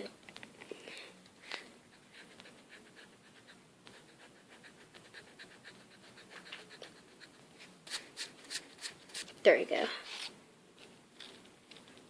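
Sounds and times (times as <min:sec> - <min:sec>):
pencil scratching on paper: 0:01.9 - 0:09.4.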